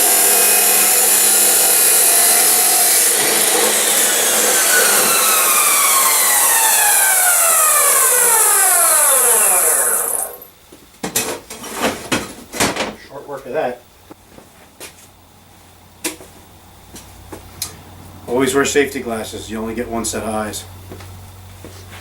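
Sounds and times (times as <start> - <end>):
chop saw grinding steel: 0.0 - 10.5.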